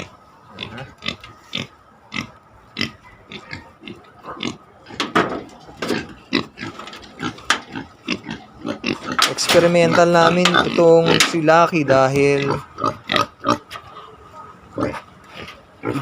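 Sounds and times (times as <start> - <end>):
pigs grunting: 0.0 - 16.0.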